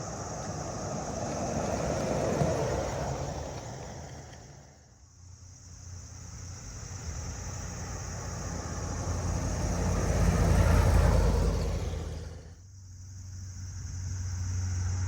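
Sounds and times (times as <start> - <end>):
car driving past: 0.0 - 5.0, 6.7 - 12.6.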